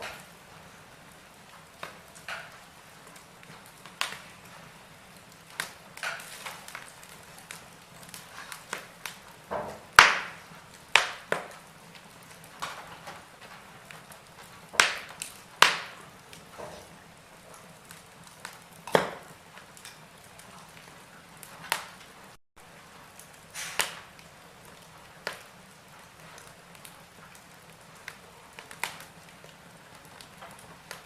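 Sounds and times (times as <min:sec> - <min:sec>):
wood fire crackling and popping: 0:00.0 - 0:31.0
faint hiss: 0:22.7 - 0:27.2.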